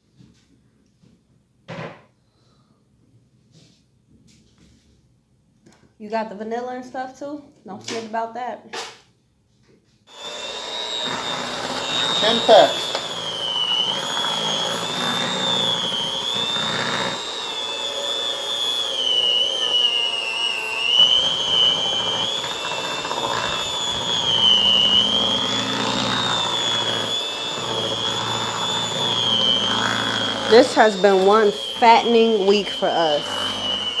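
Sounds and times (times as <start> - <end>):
electric mixer motor whining: 10.1 - 34.0.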